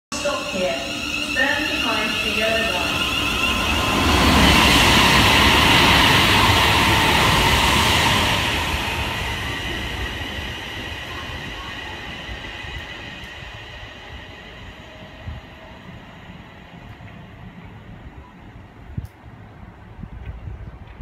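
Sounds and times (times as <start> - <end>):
train rumble: 0.1 - 21.0.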